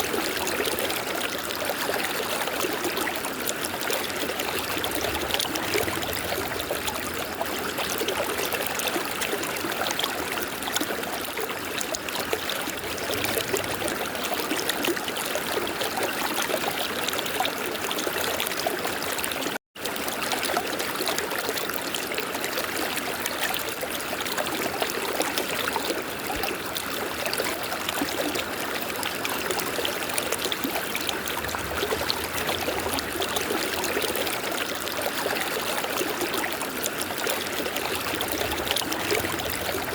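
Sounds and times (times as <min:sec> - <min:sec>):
river water rushing: 0:27.7 - 0:39.9.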